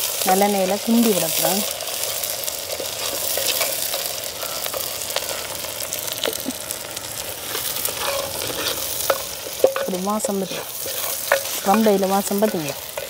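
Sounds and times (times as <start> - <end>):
onions sizzling in oil: 0.0 - 13.0
stirring clicks and scrapes: 2.7 - 5.3, 7.5 - 13.0.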